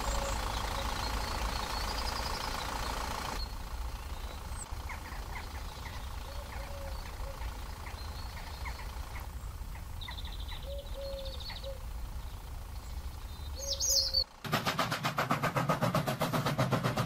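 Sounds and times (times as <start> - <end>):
bird chirps: 0.0 - 14.4.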